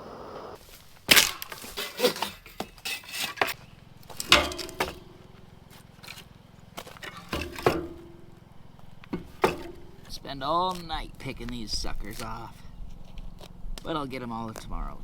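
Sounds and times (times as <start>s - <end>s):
steady hiss: 0.0s - 1.1s
cookware knocks and clinks: 4.2s - 5.1s, 7.0s - 8.2s, 9.2s - 10.1s.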